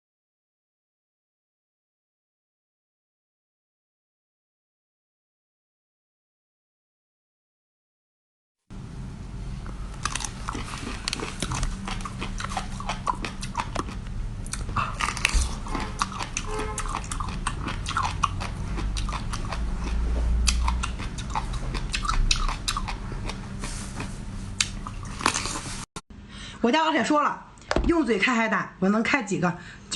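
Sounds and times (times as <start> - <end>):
steady low hum: 8.7 - 29.9
person chewing crunchy food: 9.7 - 25.9.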